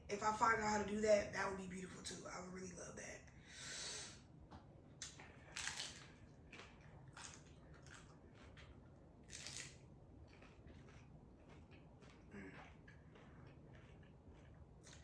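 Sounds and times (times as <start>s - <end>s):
person chewing crunchy food: 5.0s - 15.0s.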